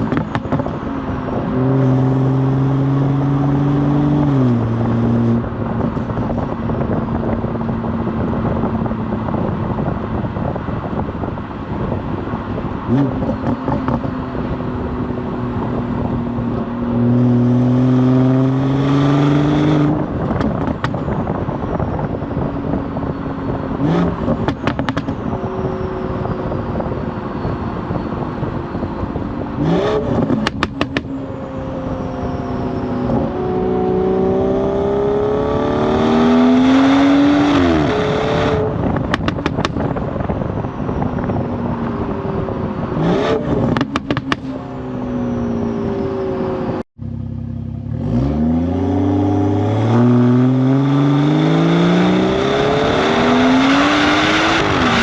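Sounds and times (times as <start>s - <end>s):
exhaust crackles and pops: 0.0s - 0.8s, 20.1s - 21.4s, 30.1s - 31.2s, 38.8s - 40.5s, 43.6s - 44.5s.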